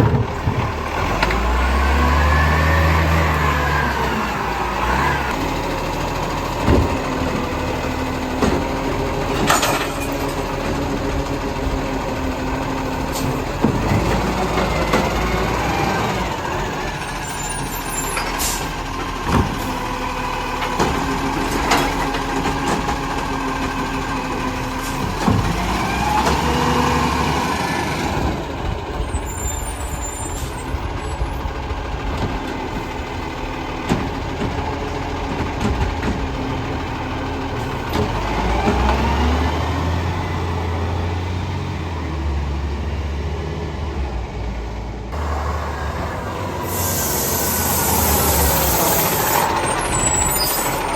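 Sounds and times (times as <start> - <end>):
engine revving: 0.0 - 17.4, 18.6 - 28.7, 37.5 - 50.9
garbage truck engine running: 0.0 - 50.9
sharp knocks and clanks: 6.6 - 7.5, 8.3 - 10.8, 19.1 - 19.8, 20.6 - 23.2, 24.9 - 26.5.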